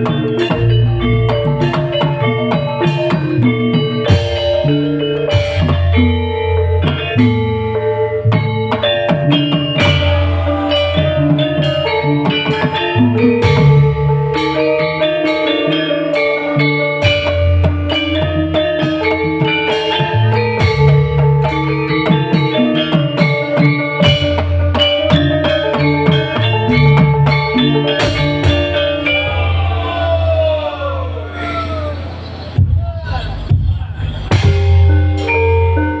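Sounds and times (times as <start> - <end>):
bass line: 0.0 - 15.0
drum kit: 0.0 - 15.8, 16.4 - 30.9, 32.4 - 36.0
plucked guitar melody: 0.0 - 29.3.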